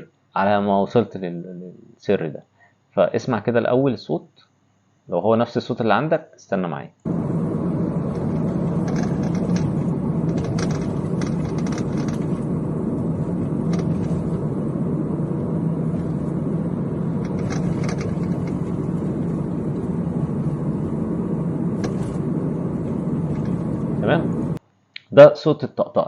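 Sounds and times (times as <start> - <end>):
car driving on rough road: 7.1 - 24.6
steering column clicking: 8.0 - 14.6, 15.2 - 21.0.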